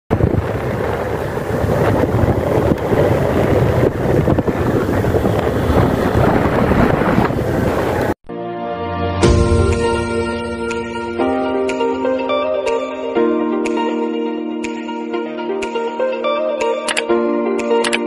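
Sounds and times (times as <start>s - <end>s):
wind buffeting microphone: 0.1s - 8.2s.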